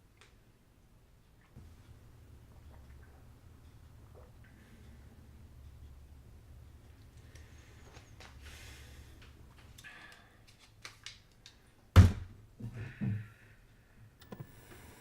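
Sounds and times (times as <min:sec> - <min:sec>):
loud thump: 0:12.0 - 0:12.3.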